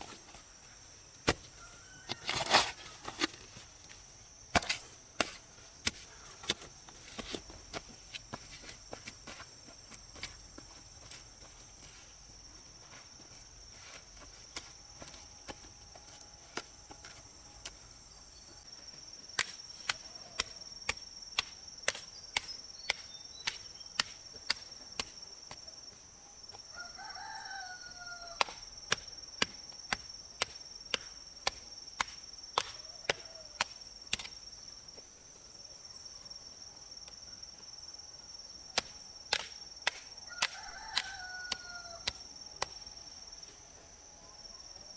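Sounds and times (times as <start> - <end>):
high insect drone: 0.0 - 44.9
sharp chopping strikes: 1.2 - 1.5, 4.6 - 6.6, 38.8 - 42.7
rooster crowing: 1.5 - 3.2, 26.7 - 28.6, 40.3 - 42.2.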